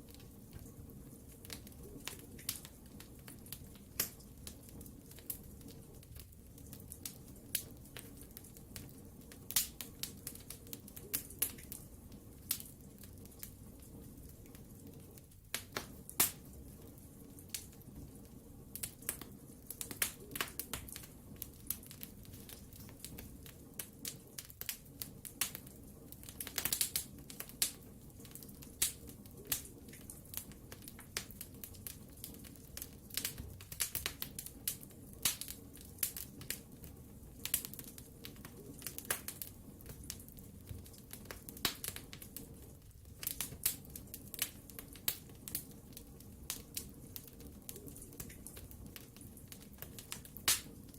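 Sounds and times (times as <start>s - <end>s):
low rumble of flames: 0.0s - 50.9s
wood fire crackling: 0.0s - 50.9s.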